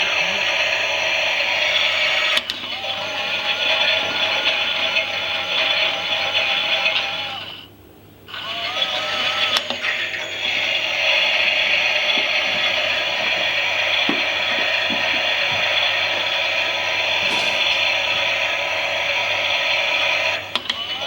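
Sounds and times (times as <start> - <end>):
toy washing machine motor whirring: 8.4 - 21.0.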